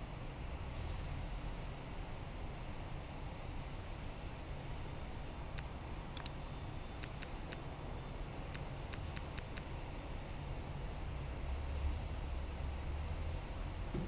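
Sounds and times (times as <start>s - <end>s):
faint sharp clicks: 5.5s - 7.7s, 8.5s - 9.7s.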